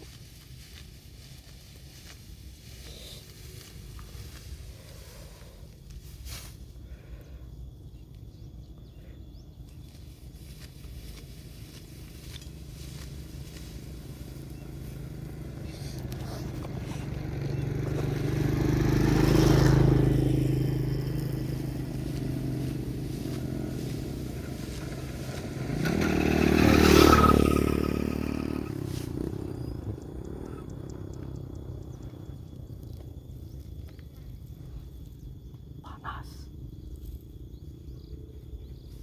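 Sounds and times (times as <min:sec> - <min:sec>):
motor vehicles passing: 0:09.8 - 0:36.2.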